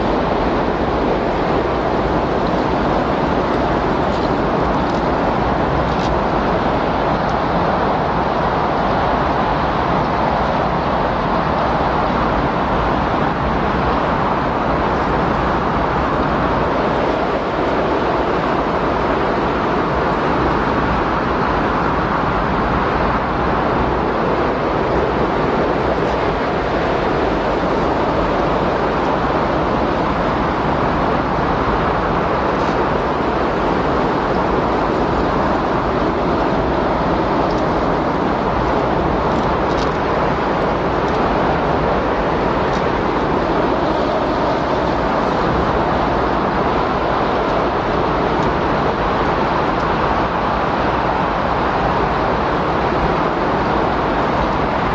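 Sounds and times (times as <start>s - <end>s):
strong wind blowing: 0.0s - 54.9s.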